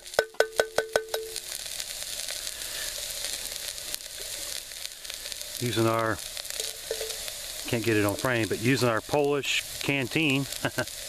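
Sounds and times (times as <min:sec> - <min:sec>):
vegetables sizzling in oil: 0:00.0 - 0:11.0
metal spoon tapping pot rim: 0:00.2 - 0:01.4.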